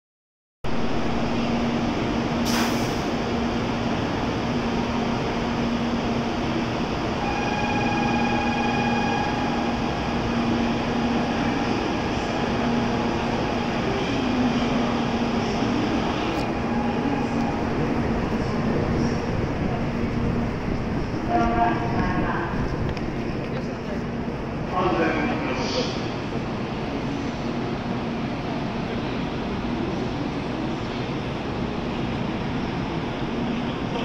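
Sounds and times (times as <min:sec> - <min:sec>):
train running noise: 0:00.7 - 0:34.0
train whine: 0:00.7 - 0:34.0
brief hiss: 0:02.4 - 0:03.1.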